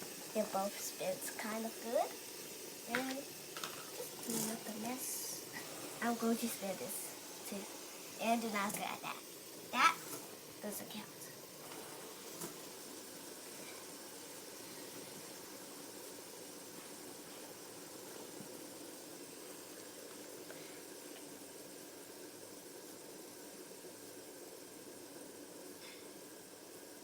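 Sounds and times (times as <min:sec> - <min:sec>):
fidget spinners whirring: 0:00.0 - 0:27.0.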